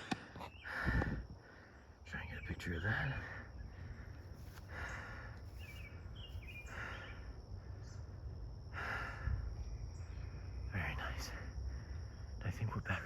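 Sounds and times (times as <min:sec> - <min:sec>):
bird chirping: 0:00.0 - 0:00.8, 0:01.6 - 0:08.2, 0:09.6 - 0:11.2
man breathing hard: 0:00.0 - 0:02.0, 0:03.1 - 0:09.6.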